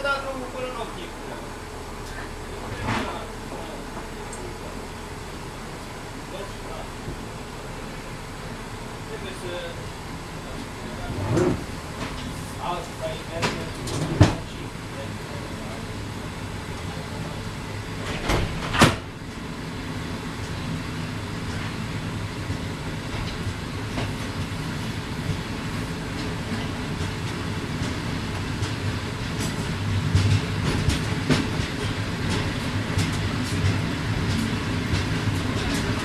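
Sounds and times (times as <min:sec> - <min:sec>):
train low rumble: 0:00.0 - 0:36.0
wheels clicking over rail joints: 0:10.6 - 0:15.9, 0:20.4 - 0:36.0.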